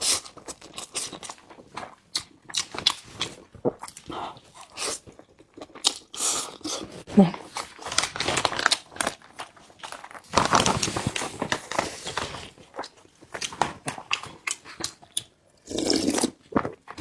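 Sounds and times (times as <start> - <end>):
chewing and biting noodles: 0.0 - 10.9.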